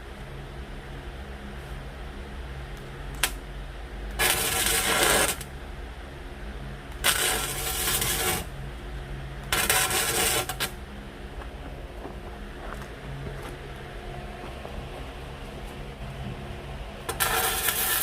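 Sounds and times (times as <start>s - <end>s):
steady low hum: 0.0s - 18.0s
arc welding crackle: 2.6s - 5.8s, 6.8s - 16.0s, 17.0s - 18.0s.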